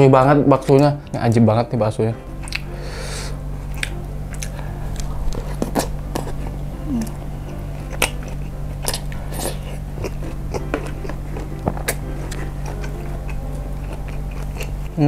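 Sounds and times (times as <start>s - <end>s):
chewing with wet mouth smacks: 2.4s - 2.7s, 3.7s - 15.0s.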